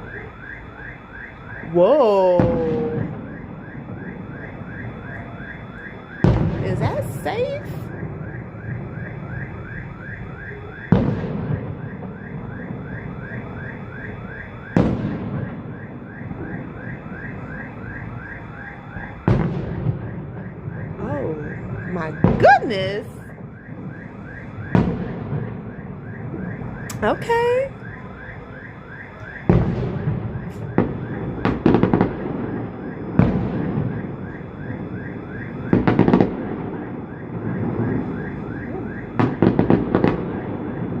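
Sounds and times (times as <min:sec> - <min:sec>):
electronic alarm whooping: 0:00.0 - 0:11.0, 0:20.1 - 0:24.9
steady background noise: 0:00.0 - 0:41.0
firework explosion: 0:01.2 - 0:41.0.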